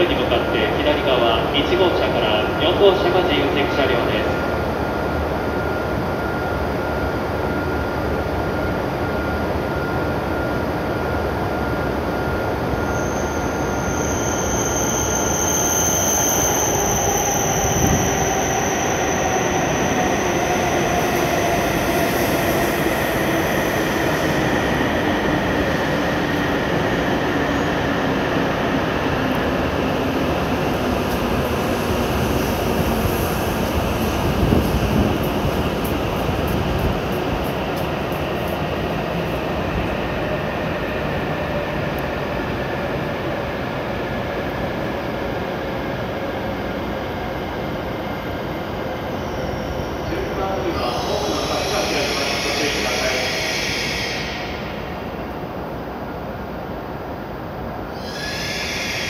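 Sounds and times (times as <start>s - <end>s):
train rolling noise: 0.0s - 59.0s
train whine falling in pitch: 12.4s - 27.9s
high brake squeal: 12.7s - 22.3s, 50.8s - 54.8s, 57.9s - 59.0s.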